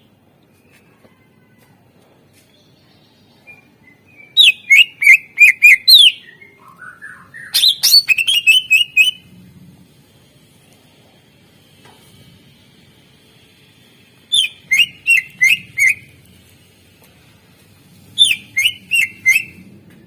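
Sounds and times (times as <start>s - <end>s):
bird singing whistled notes: 3.4s - 9.2s, 14.3s - 16.1s, 18.2s - 19.6s.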